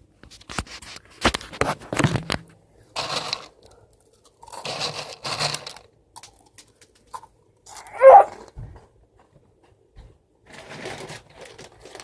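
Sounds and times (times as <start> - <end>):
cereal pouring into a bowl: 3.0 - 3.6, 4.4 - 5.9.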